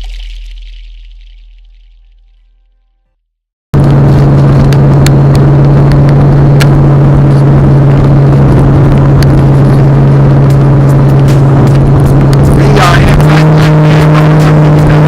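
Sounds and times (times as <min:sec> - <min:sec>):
car engine running: 0:03.8 - 0:15.0.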